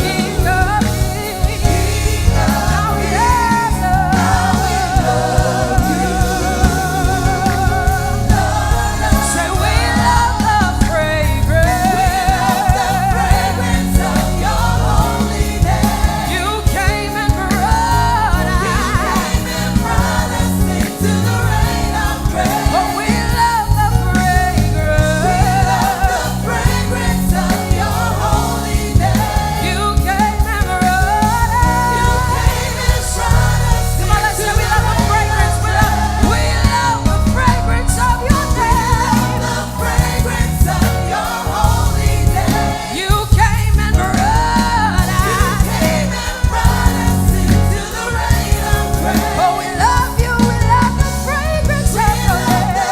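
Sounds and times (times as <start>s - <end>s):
band with strong bass: 0.0s - 52.9s
choir singing: 0.0s - 52.9s
lead singer singing: 0.0s - 52.9s.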